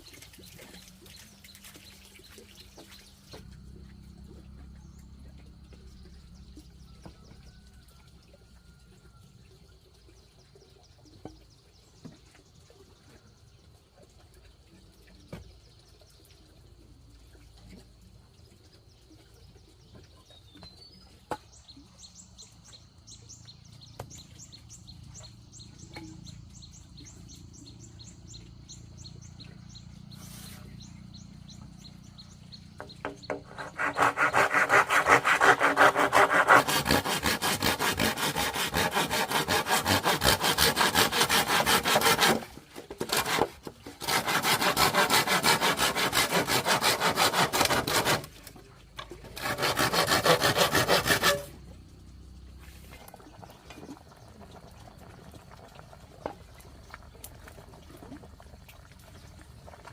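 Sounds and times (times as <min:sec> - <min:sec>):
saw cutting through wood: 0:32.8 - 0:48.6, 0:49.2 - 0:51.6.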